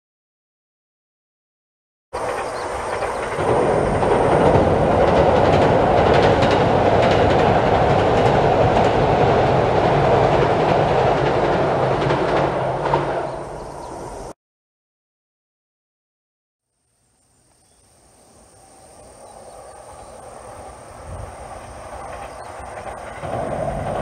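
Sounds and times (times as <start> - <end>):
rapid rail clicks: 2.2 - 13.3, 19.8 - 24.0
train wheels rumbling on bridge: 2.2 - 14.3, 18.7 - 24.0.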